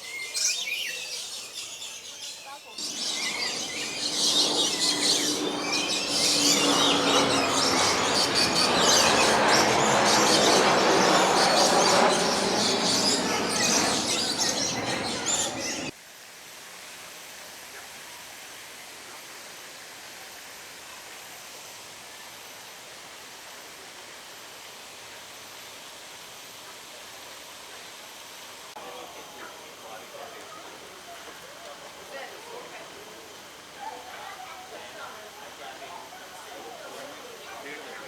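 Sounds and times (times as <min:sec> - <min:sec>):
birds chirping and calling: 0:00.1 - 0:15.9
dense background noise: 0:02.7 - 0:15.9.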